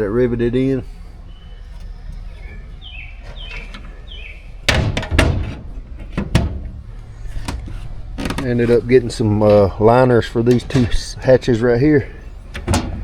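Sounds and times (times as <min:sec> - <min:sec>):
hatch lids knocking and clattering: 0:00.8 - 0:13.0.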